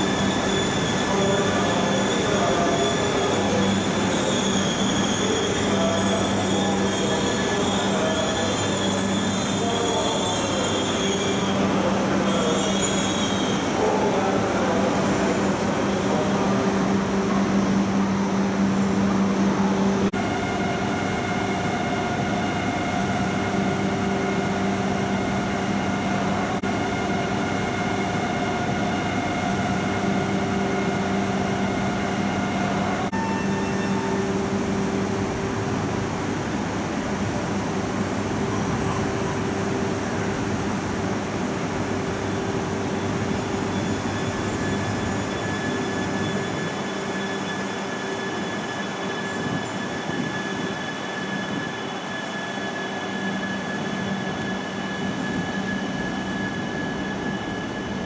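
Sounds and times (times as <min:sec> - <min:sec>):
train electrical hum: 0:00.0 - 0:58.0.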